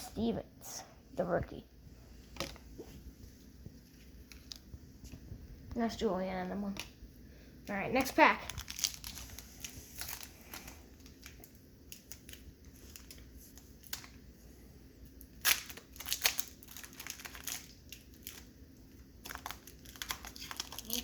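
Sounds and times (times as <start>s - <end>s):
card pack wrapper crinkling: 8.0s - 14.2s, 15.2s - 21.0s.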